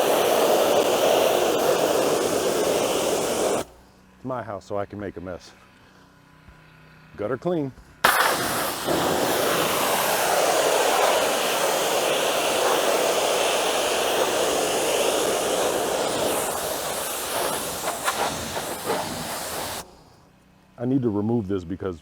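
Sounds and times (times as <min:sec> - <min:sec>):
pressure washer water spray hiss: 0:00.0 - 0:03.8, 0:08.1 - 0:20.2.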